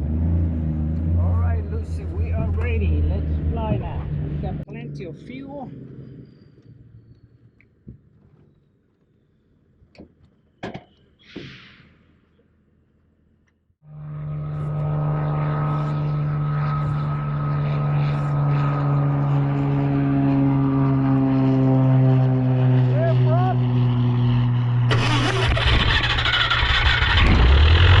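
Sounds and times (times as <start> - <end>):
aircraft piston engine running: 13.9 - 28.0.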